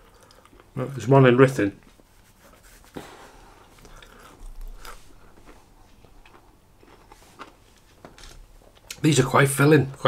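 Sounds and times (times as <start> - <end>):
man chewing food: 0.0 - 0.8, 3.4 - 9.0.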